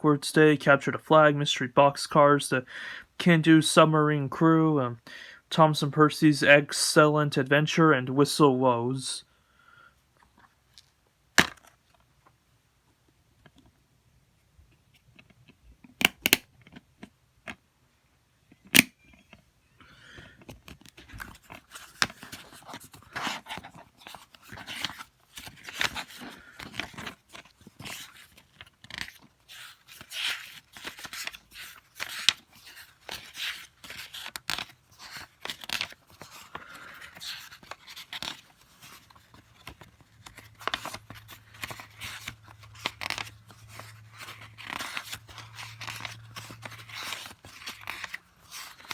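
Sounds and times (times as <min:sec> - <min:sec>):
packaging crinkling and rustling: 0:20.5 - 0:48.9.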